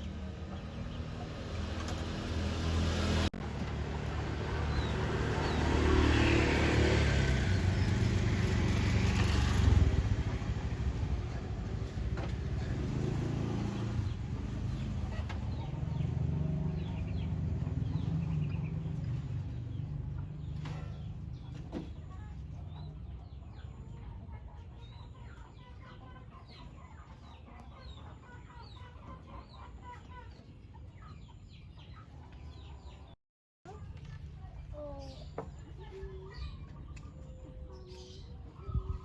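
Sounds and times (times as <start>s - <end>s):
engine low hum: 0.0s - 39.0s
chickens clucking: 10.5s - 33.2s, 34.7s - 39.0s.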